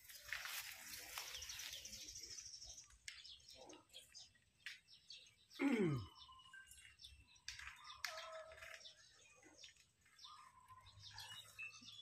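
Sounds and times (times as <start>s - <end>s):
faint bird chirps: 5.0s - 12.0s.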